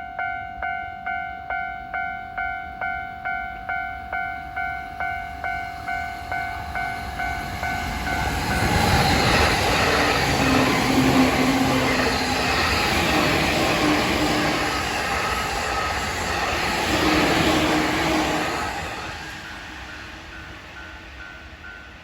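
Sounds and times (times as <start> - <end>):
electric train rushing past: 4.5 - 22.0.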